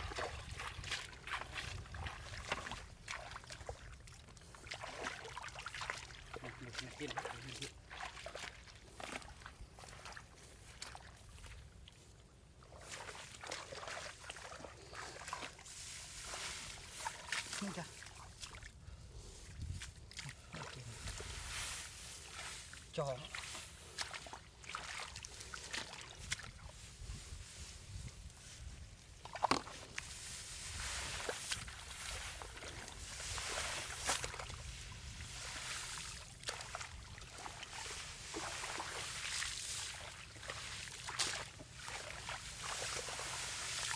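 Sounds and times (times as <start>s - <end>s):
shallow water splashing: 0.0s - 11.2s, 20.0s - 26.8s, 29.1s - 43.9s.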